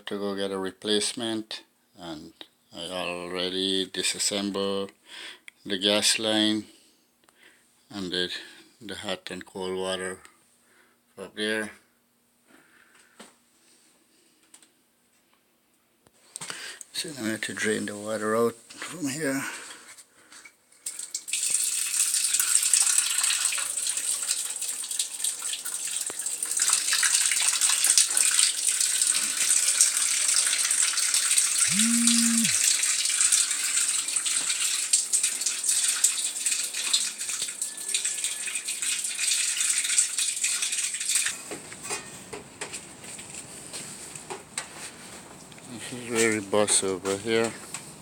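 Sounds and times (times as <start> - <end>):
water draining from a tank: 20.8 - 31.6, 32.6 - 41.4.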